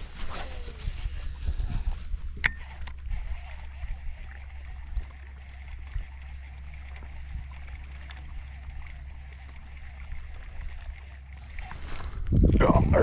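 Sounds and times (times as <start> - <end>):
boat low rumble: 0.0 - 13.0
faint ticks: 2.4 - 12.2.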